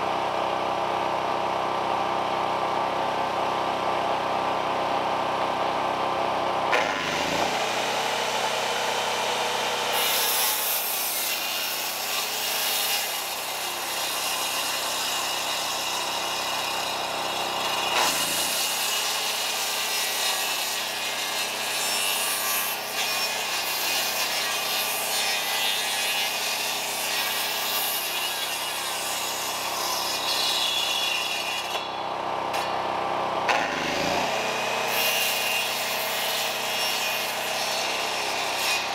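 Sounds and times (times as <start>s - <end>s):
chainsaw cutting timber: 6.7s - 31.9s, 33.4s - 38.9s.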